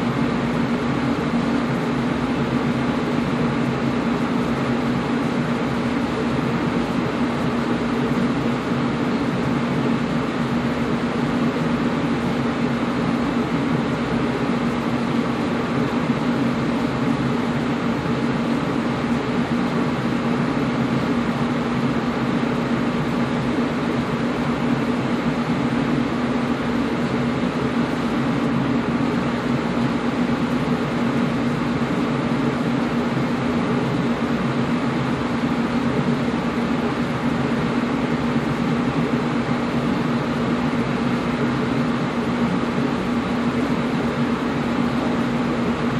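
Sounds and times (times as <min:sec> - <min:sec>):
air conditioner air rushing: 0:00.0 - 0:45.9
low motor hum: 0:00.0 - 0:45.9.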